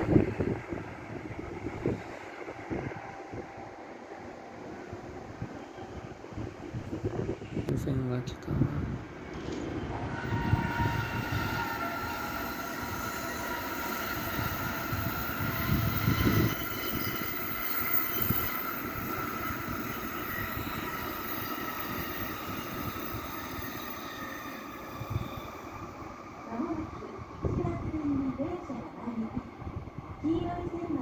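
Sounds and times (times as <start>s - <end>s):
train passing with rumble: 0.0s - 31.0s
high-pitched whine: 7.7s - 26.6s.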